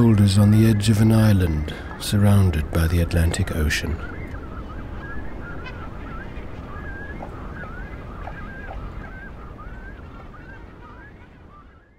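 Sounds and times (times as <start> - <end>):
cormorants calling with honk-like cries: 4.1 - 11.9.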